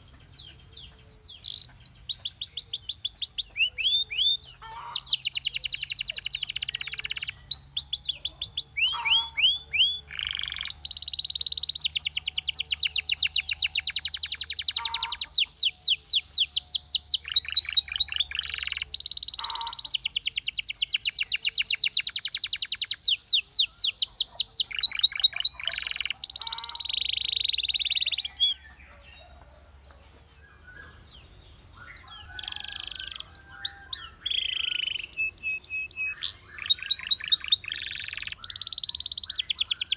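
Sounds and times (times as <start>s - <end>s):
canary singing trills: 0.0s - 29.6s, 30.3s - 39.9s.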